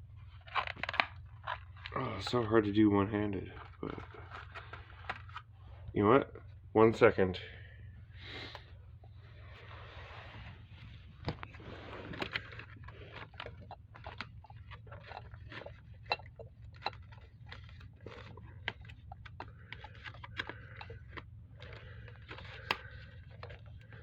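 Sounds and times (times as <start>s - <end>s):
steady low hum: 0.0s - 24.0s
utensils and containers clicking: 11.4s - 24.0s.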